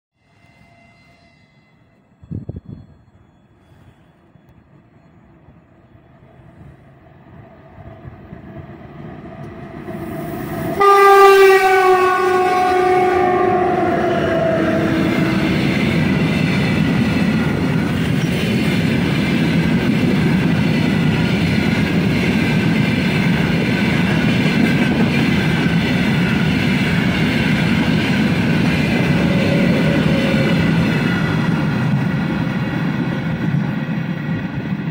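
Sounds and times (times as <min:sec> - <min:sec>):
train wheels rumbling over rails: 0:02.2 - 0:34.9
locomotive horn: 0:10.7 - 0:16.1, 0:28.8 - 0:30.8.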